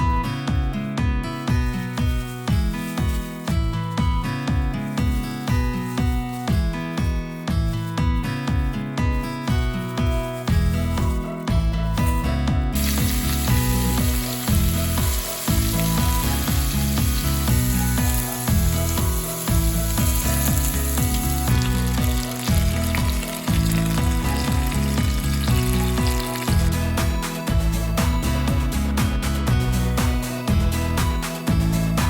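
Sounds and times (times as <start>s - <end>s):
background music with bass line: 0.0s - 32.0s
food sizzling in a pan: 12.8s - 28.5s.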